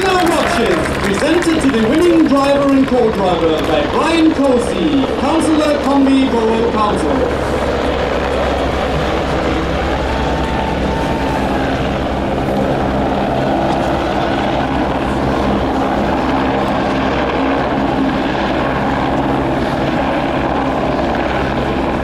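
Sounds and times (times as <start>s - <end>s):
loud mechanical drone: 0.0s - 22.0s.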